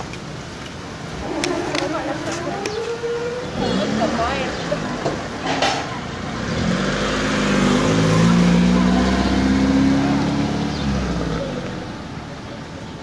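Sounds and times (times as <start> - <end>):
car engine passing by: 2.0 - 12.2.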